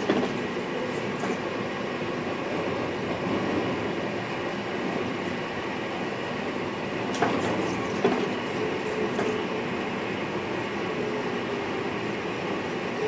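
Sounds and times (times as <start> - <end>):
train wheel knocks: 0.0 - 0.4, 7.1 - 8.4
train rumble in cab: 0.0 - 13.0.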